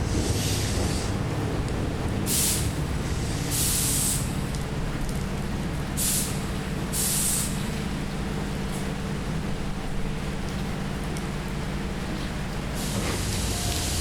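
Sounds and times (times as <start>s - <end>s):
heavy rain: 0.0s - 14.0s
standing train hum: 0.0s - 14.0s
air brakes hissing: 2.3s - 4.4s, 6.0s - 7.6s, 12.8s - 14.0s.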